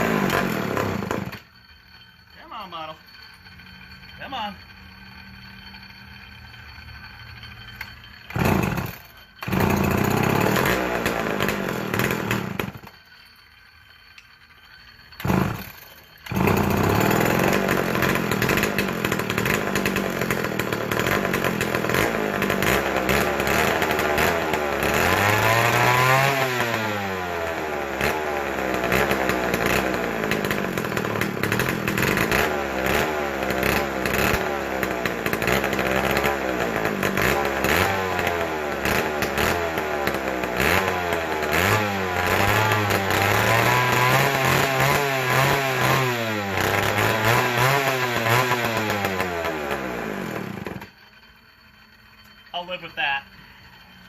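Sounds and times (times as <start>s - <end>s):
chainsaw engine starting and revving: 0.0s - 1.4s, 8.3s - 13.0s, 15.2s - 50.9s.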